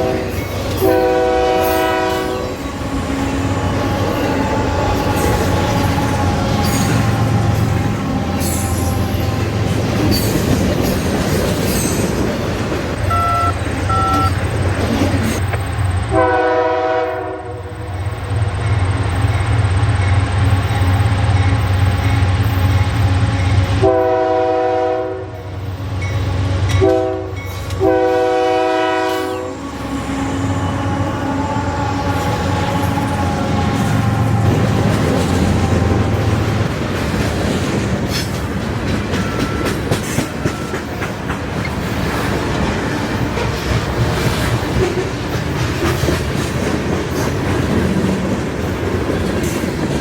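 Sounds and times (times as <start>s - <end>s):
train air horn blasts: 0.0s - 9.8s, 13.1s - 14.4s, 16.1s - 17.8s, 23.8s - 25.5s, 26.8s - 36.9s
diesel locomotive rumbling: 0.0s - 50.0s.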